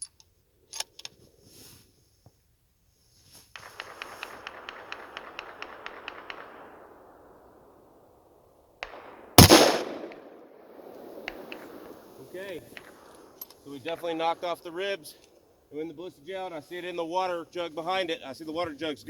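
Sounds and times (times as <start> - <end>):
loud rifle shot: 3.7 - 7.8, 8.8 - 13.4.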